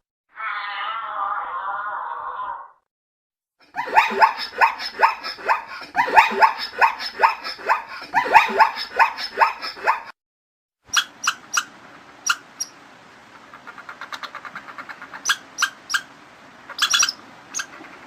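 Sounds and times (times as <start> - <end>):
animal yelping calls: 3.6 - 10.1, 13.5 - 16.1, 16.7 - 18.0.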